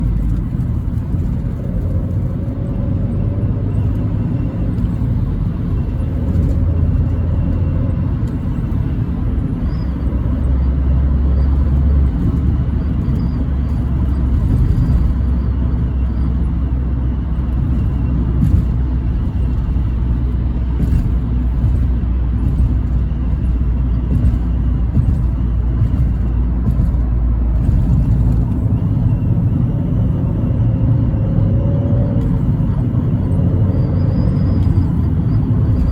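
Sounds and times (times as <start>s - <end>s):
car engine exhaust rumble: 0.0s - 35.9s.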